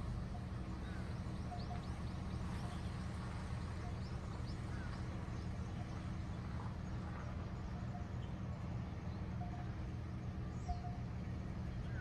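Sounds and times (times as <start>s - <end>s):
steady low rumble: 0.0s - 12.0s
small birds chirping: 10.5s - 11.0s.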